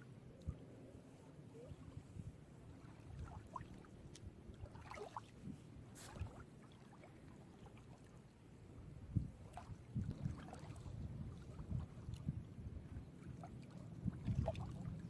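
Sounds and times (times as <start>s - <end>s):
sea waves lapping: 1.5s - 8.3s, 9.4s - 12.1s
wind on microphone: 1.6s - 3.6s, 8.8s - 15.0s.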